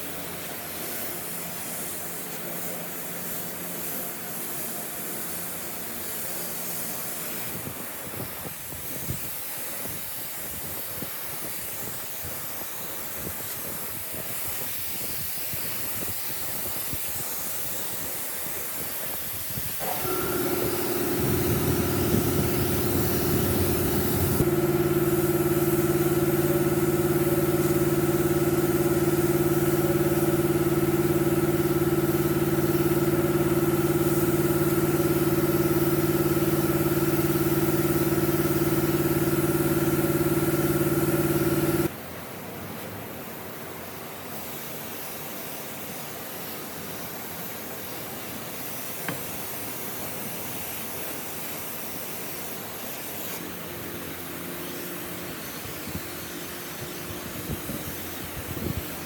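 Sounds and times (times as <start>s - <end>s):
machine motor running: 19.8s - 41.9s.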